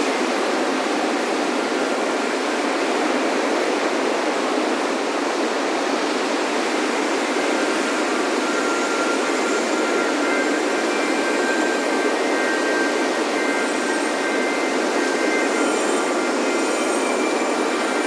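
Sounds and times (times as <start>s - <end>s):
ocean surf washing onto beach: 0.0s - 18.0s
faint wind chimes: 6.3s - 18.0s.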